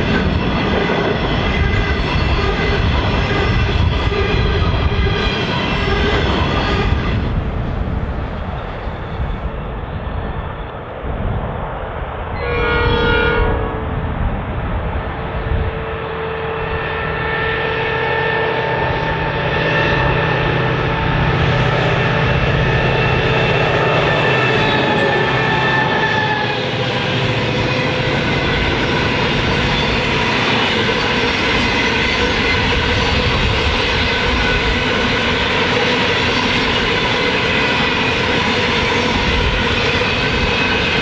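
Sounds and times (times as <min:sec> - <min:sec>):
train wheels rumbling on rails: 0:00.0 - 0:41.0
train horn blast: 0:12.4 - 0:14.0, 0:15.5 - 0:34.9
locomotive engine drone: 0:13.5 - 0:41.0.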